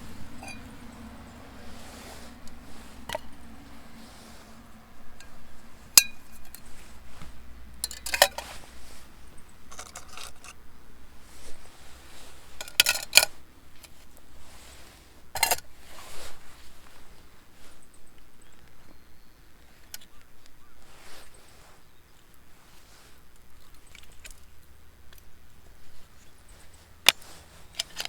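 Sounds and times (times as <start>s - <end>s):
metal cookware clinking: 0.2s - 0.9s, 6.0s - 6.6s, 7.8s - 8.5s.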